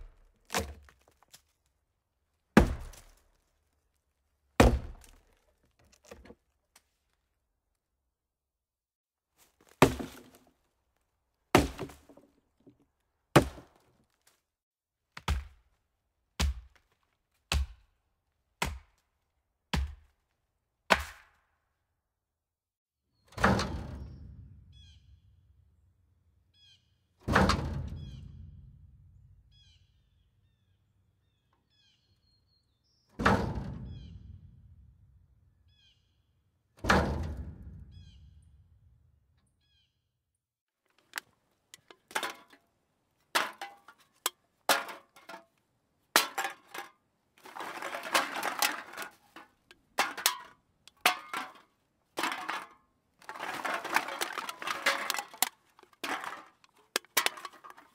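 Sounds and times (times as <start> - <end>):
dumpster lid slamming: 4.6 - 5.2, 23.4 - 24.6, 27.2 - 28.8, 33.2 - 34.4, 36.8 - 38.1
cans clattering together: 41.8 - 42.6, 43.4 - 45.4, 46.2 - 51.6, 52.2 - 57.9.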